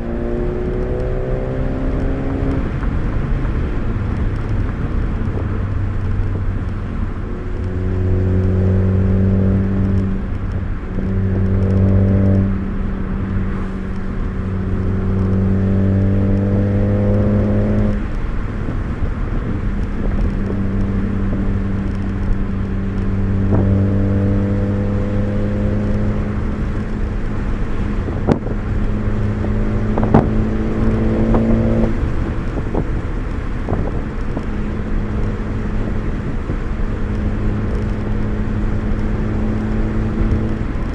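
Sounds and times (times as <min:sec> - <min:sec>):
car engine accelerating: 0:00.0 - 0:40.9.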